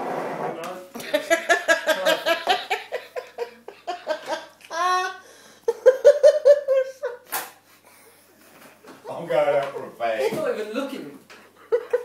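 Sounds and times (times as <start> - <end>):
hearty laughter: 1.0 - 7.3, 11.6 - 12.0.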